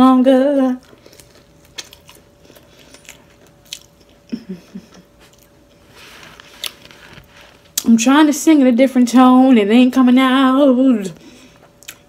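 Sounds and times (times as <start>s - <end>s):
chewing with wet mouth clicks: 0.8s - 4.3s, 11.7s - 12.0s.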